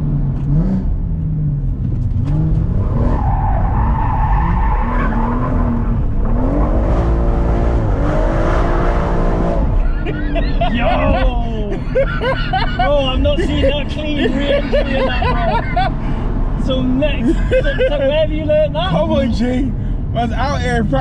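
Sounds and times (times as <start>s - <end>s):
car engine revving: 0.0s - 21.0s
tyres squealing and skidding: 2.8s - 6.9s.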